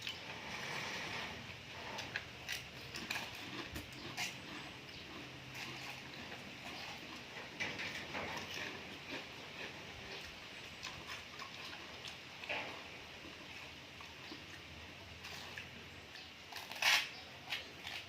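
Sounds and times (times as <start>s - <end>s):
wet crunchy chewing: 0.0s - 18.0s.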